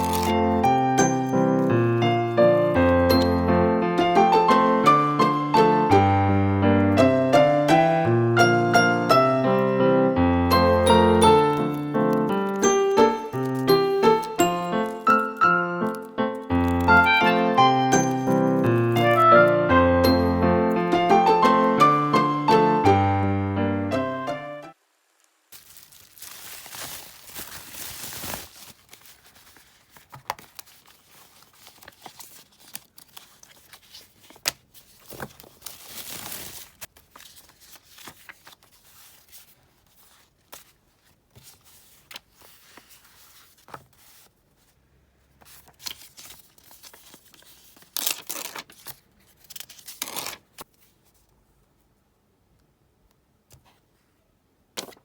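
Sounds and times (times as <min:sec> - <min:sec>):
tape being peeled and torn: 0:00.0 - 0:00.6, 0:13.3 - 0:17.1, 0:25.5 - 0:39.0, 0:45.5 - 0:50.8
paper rustling: 0:00.0 - 0:03.4, 0:10.9 - 0:19.3, 0:25.5 - 0:51.4, 0:54.8 - 0:55.0.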